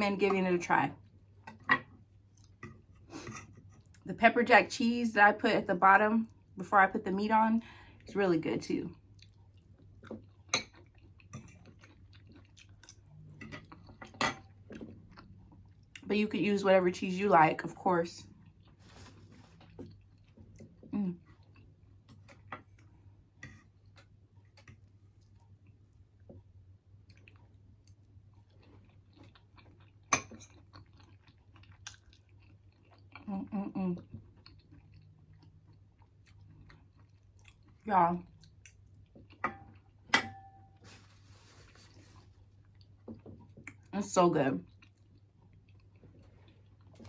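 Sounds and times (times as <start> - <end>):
person chewing food: 1.1 - 4.0, 8.9 - 16.0, 18.4 - 33.3, 34.0 - 40.1, 40.9 - 43.9, 44.7 - 47.0.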